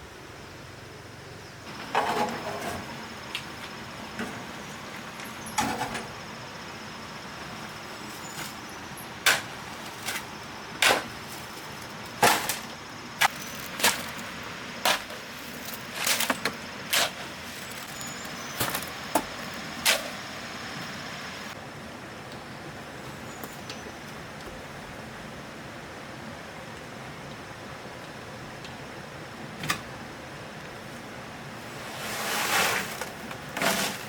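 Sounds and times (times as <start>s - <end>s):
hand tools scraping cement mix: 1.8s - 3.0s, 8.0s - 20.2s, 31.6s - 34.0s.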